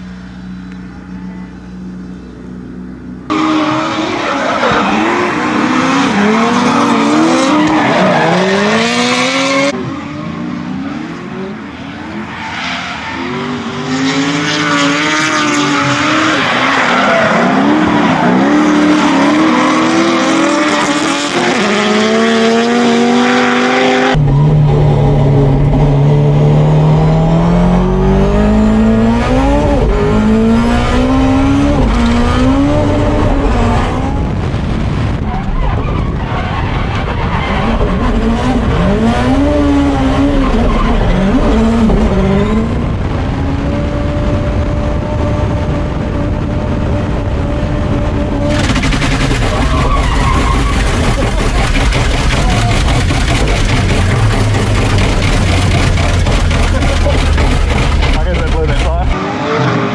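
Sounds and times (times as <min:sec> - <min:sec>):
car engine revving hard: 0:03.3 - 0:11.8, 0:12.9 - 0:35.2, 0:36.1 - 0:59.9
tyres squealing and skidding: 0:03.3 - 0:14.7, 0:15.6 - 0:21.8, 0:35.1 - 0:42.6, 0:48.7 - 0:59.9.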